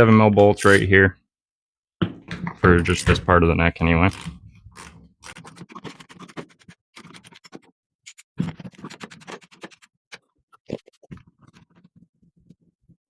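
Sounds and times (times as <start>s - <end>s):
hand ratchet clicking: 4.1s - 5.4s.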